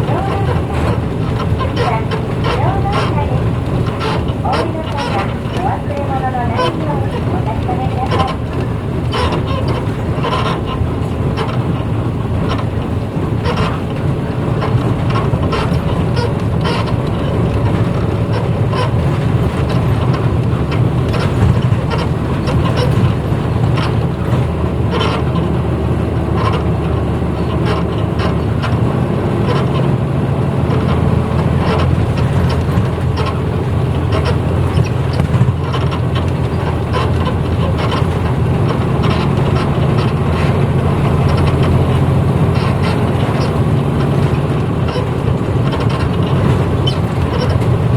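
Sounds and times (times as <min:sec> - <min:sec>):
bodywork rattles and clicks: 0:00.0 - 0:47.9
bus engine drone: 0:00.0 - 0:47.9.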